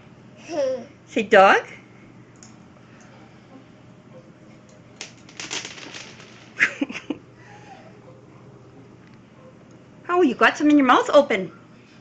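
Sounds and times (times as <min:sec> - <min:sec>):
dry kibble rattling: 0:05.0 - 0:06.8.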